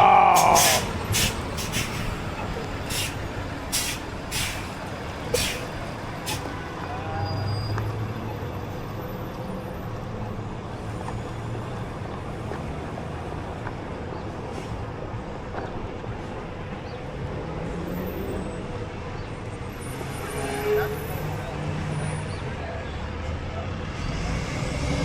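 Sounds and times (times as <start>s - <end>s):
city street traffic: 0.0s - 25.0s
short hisses: 0.3s - 2.2s, 2.9s - 6.5s.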